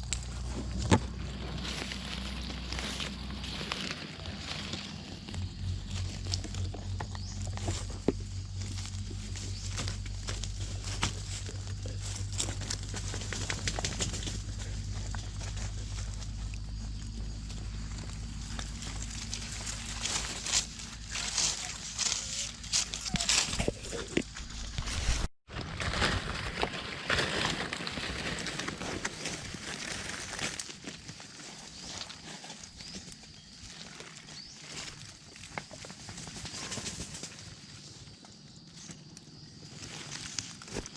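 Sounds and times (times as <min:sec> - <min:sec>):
dry leaves and twigs crackling: 0:00.0 - 0:40.9.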